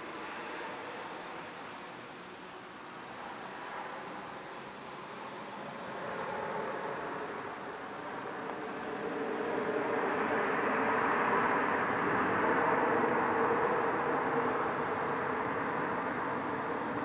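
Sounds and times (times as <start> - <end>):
jet engine roar: 4.6 - 17.0.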